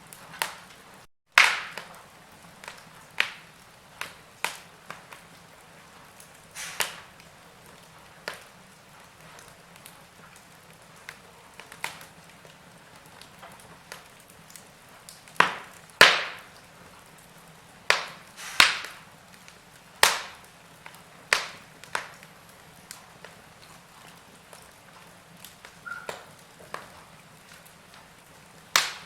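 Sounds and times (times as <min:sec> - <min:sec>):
fire crackling in a fireplace: 0:00.0 - 0:29.0
sharp fire pops: 0:00.1 - 0:12.2, 0:12.9 - 0:29.0.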